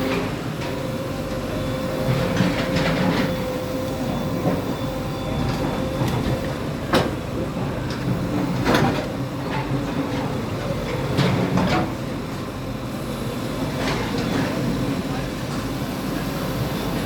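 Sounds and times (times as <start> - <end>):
bulldozer engine running: 0.0 - 11.2.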